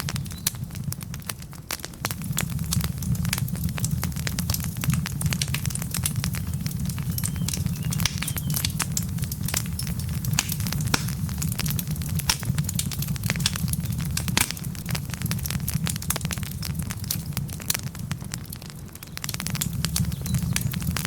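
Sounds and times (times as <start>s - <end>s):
low rumble of fire: 0.0s - 21.0s
wood fire crackling and popping: 0.0s - 21.0s.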